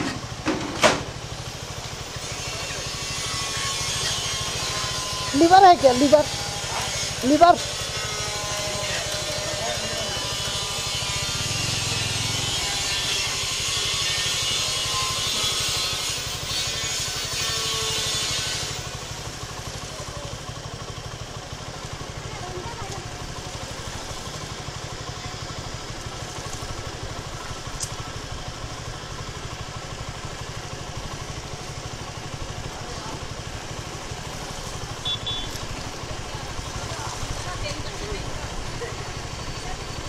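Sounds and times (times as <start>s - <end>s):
motorcycle engine running: 0.0s - 40.0s
short high beeps: 35.0s - 35.6s.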